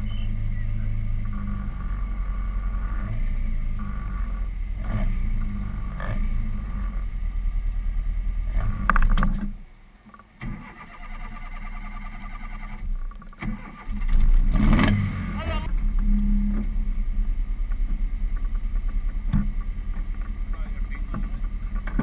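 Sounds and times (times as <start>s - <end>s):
car engine idling: 0.0s - 22.0s
starter motor cranking: 10.4s - 15.2s.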